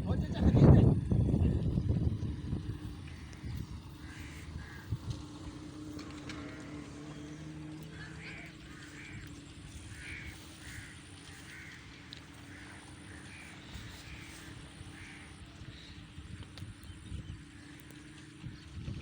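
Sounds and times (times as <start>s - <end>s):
steady low hum: 0.0s - 19.0s
crow calling: 2.6s - 16.2s.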